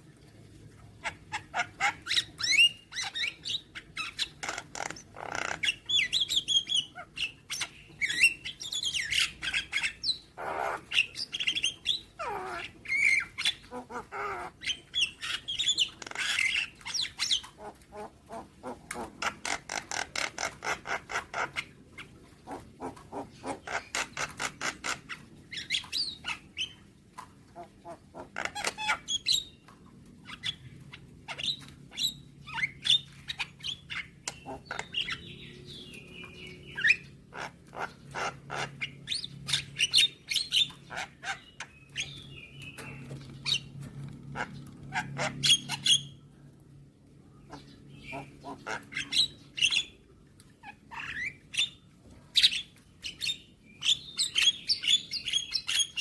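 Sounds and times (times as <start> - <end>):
bird harsh clicking chatter: 4.1 - 6.1, 15.1 - 17.7, 18.6 - 21.8, 22.5 - 25.2, 28.2 - 29.3, 34.0 - 35.2.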